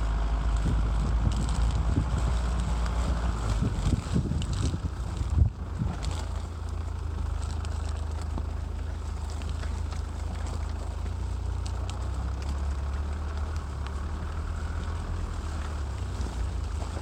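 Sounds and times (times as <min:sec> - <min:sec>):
wind noise on microphone: 0:00.0 - 0:06.4
motorbike engine droning: 0:00.0 - 0:17.0.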